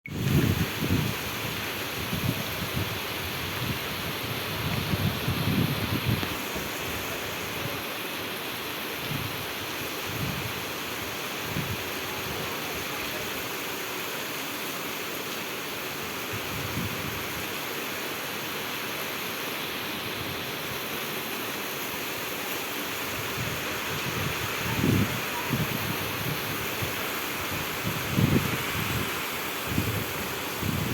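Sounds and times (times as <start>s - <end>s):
wind buffeting microphone: 0.1s - 7.7s, 23.1s - 30.9s
steady rain falling: 0.1s - 30.9s.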